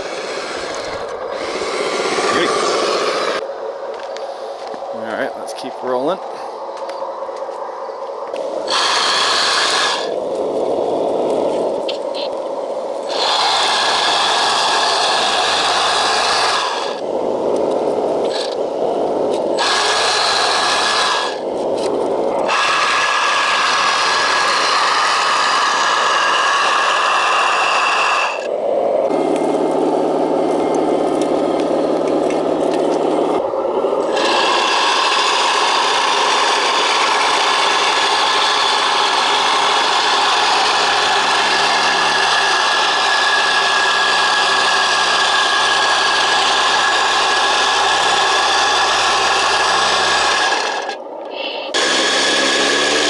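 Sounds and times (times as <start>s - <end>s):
toy machine motors whirring: 8.7s - 10.2s, 19.6s - 21.8s, 22.4s - 28.5s, 34.0s - 53.0s.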